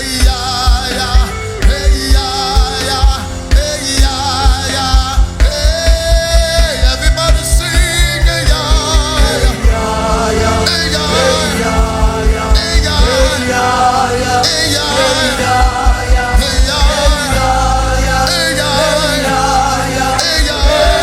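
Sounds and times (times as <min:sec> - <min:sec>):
bass drum beating: 0:00.0 - 0:21.0
people singing over a band: 0:00.0 - 0:21.0.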